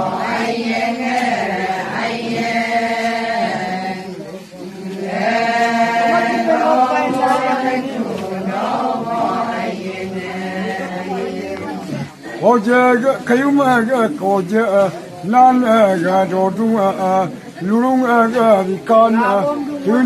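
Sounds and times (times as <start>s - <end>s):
voices chanting: 0.0s - 20.0s.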